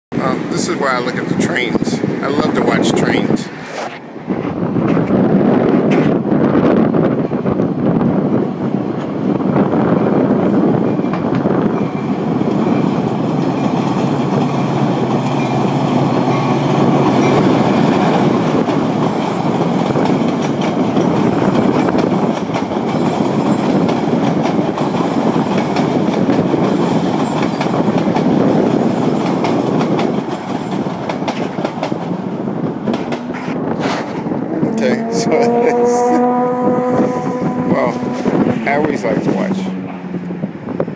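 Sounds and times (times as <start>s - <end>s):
passenger train rumbling: 0.1s - 40.9s
wheels clicking over rail joints: 10.4s - 34.3s.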